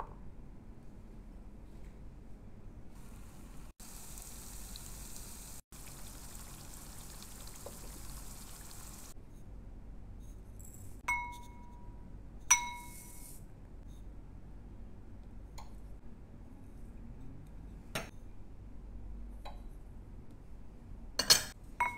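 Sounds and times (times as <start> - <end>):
spices sizzling in oil: 3.0 - 9.2
glass bowl clinking: 11.1 - 11.7, 21.2 - 21.9.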